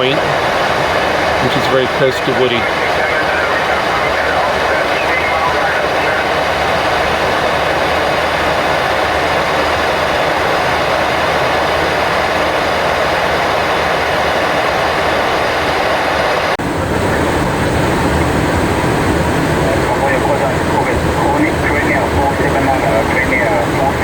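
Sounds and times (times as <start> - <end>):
engine hum: 0.0 - 24.0
rush of airflow: 6.4 - 24.0.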